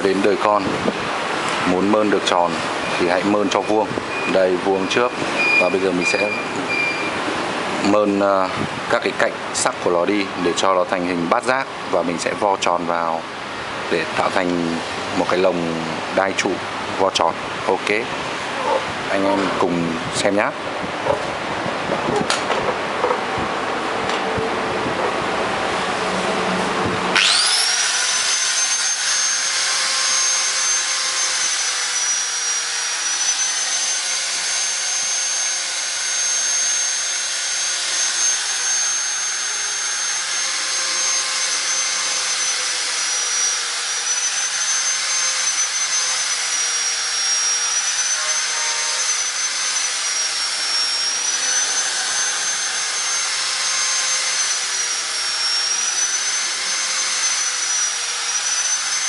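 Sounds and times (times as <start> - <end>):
high-speed power tool whine: 0.0 - 9.0, 25.9 - 59.0.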